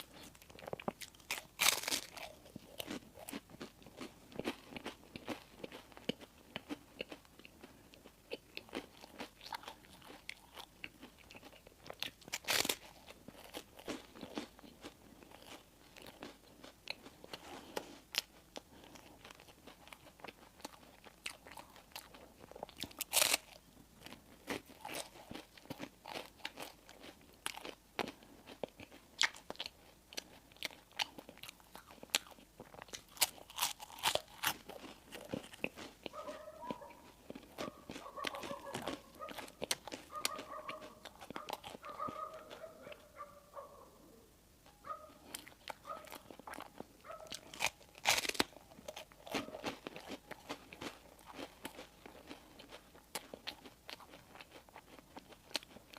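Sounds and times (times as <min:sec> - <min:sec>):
loud crunching bites: 0:00.0 - 0:07.2, 0:08.3 - 0:16.4, 0:22.6 - 0:29.7, 0:30.7 - 0:42.6, 0:45.2 - 0:55.9
person chewing crispy bread: 0:00.0 - 0:43.5, 0:44.8 - 0:55.9.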